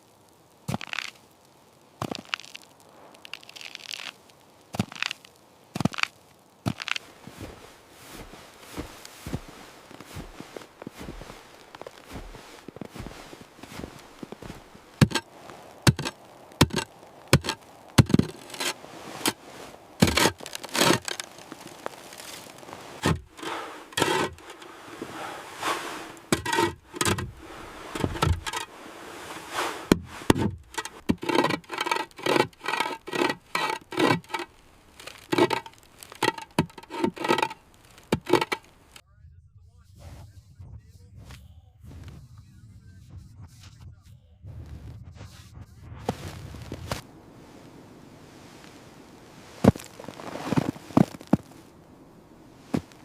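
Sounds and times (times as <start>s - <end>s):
sharp knocks and scrapes: 8.2s - 39.0s.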